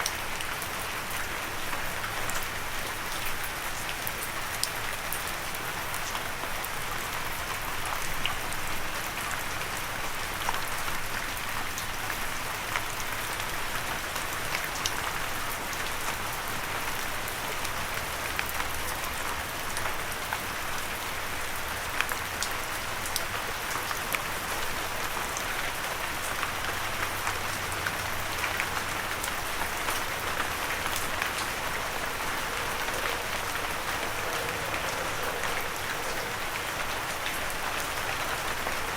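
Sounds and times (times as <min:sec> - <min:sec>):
light rain falling: 0:00.0 - 0:38.9.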